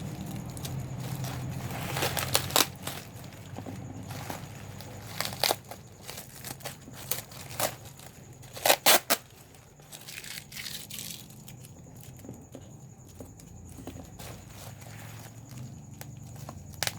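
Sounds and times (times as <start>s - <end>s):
bubble wrap popping: 0.0s - 7.8s
plastic sheet crinkling: 0.0s - 11.4s.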